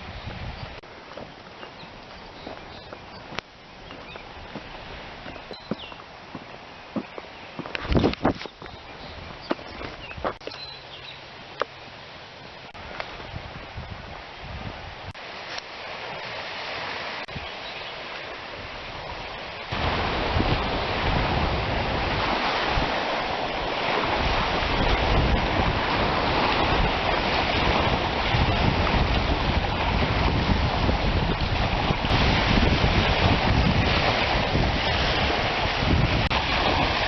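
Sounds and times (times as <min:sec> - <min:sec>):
wind buffeting microphone: 0:00.0 - 0:10.4, 0:12.8 - 0:15.2, 0:18.4 - 0:37.0.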